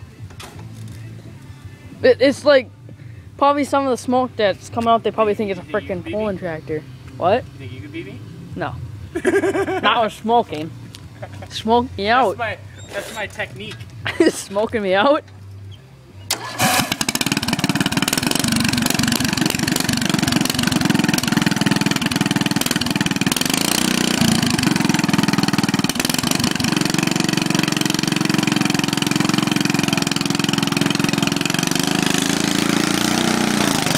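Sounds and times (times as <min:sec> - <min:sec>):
lawnmower engine running: 0:16.3 - 0:33.9.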